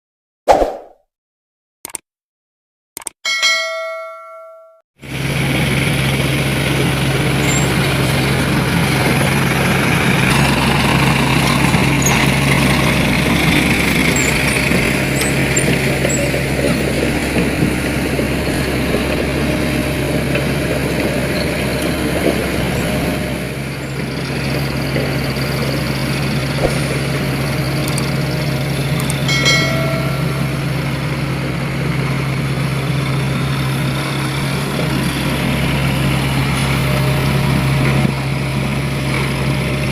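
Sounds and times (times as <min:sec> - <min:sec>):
high ringing tone: 0:03.3 - 0:04.8, 0:07.4 - 0:07.8, 0:29.0 - 0:31.3
truck engine humming: 0:05.0 - 0:39.9.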